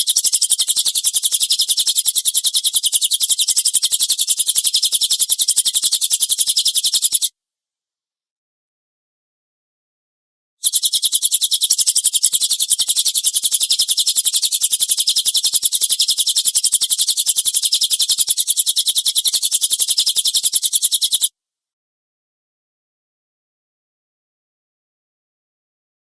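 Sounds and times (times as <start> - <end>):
bird song of sharp high chips: 0.0 - 7.3, 10.6 - 21.3.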